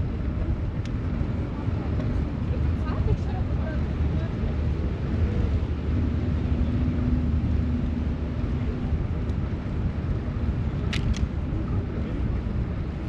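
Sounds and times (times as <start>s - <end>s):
hum: 0.0s - 13.0s
street traffic rumble: 0.0s - 13.0s
sharp clicks: 10.9s - 11.3s.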